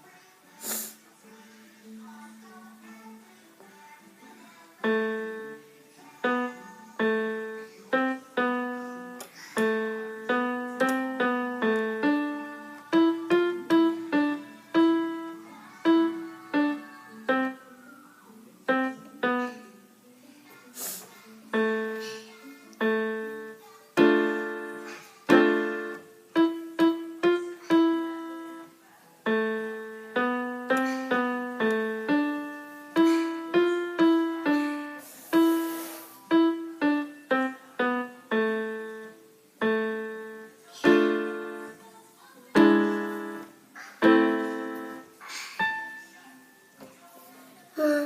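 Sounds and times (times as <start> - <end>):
child playing piano waltz: 4.8 - 18.0, 18.6 - 20.0, 21.5 - 41.9, 42.5 - 46.4.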